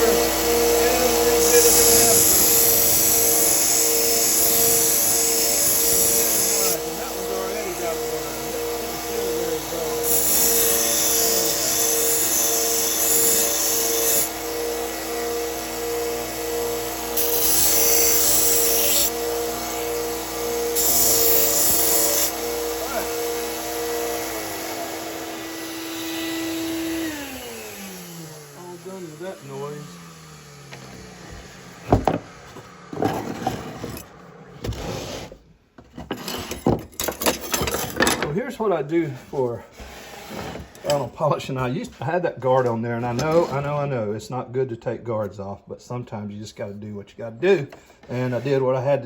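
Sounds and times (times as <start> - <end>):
belt sander motor hum: 0.0 - 10.0, 14.3 - 34.5
knife grinding on sanding belt: 0.1 - 8.4, 20.7 - 23.2
scraping and rubbing: 31.0 - 41.1.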